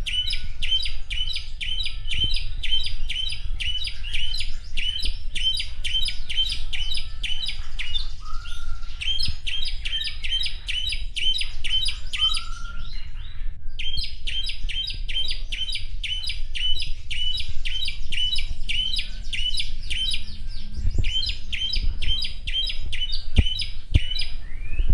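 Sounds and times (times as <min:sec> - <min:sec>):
low slurred whistles: 0:00.0 - 0:24.9
starling chirping: 0:00.0 - 0:24.9
steady low rumble: 0:13.0 - 0:24.9.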